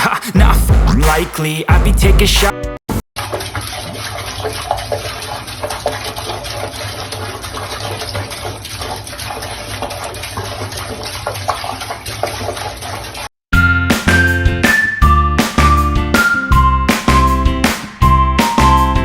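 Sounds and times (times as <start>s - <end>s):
running water splashing: 3.2s - 13.3s.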